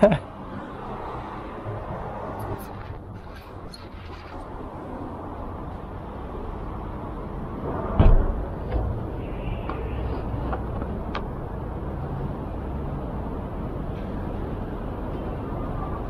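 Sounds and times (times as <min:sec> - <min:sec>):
street traffic rumble: 0:00.0 - 0:16.0
loud thump: 0:08.0 - 0:08.9.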